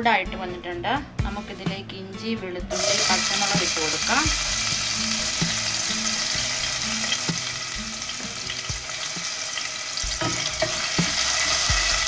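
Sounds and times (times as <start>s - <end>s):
aromatics sizzling in hot oil: 2.7s - 12.0s.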